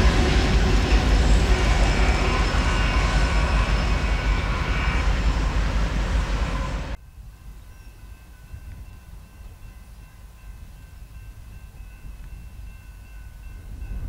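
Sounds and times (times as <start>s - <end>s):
diesel locomotives rumbling: 0.0s - 7.0s.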